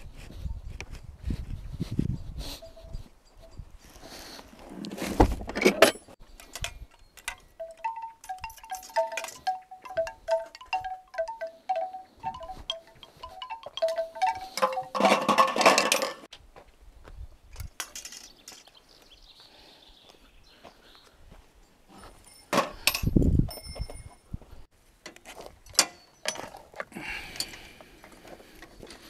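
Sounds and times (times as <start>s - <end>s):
small metal bells ringing: 2.4s - 4.4s, 6.9s - 16.2s, 21.9s - 24.2s.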